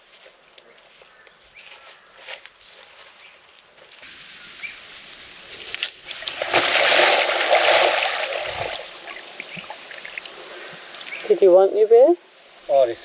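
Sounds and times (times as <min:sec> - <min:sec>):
water splashing and sloshing: 0:04.0 - 0:11.6.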